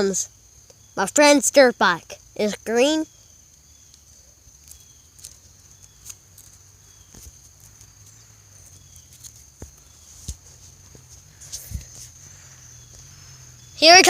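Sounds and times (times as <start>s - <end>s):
high-pitched insect drone: 0.0s - 14.0s
light clicks and rustles: 3.8s - 13.0s.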